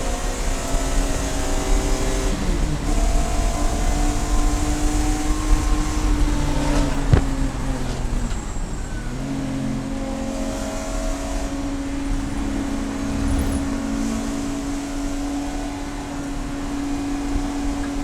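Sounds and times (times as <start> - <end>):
race car engine running: 0.0 - 18.0.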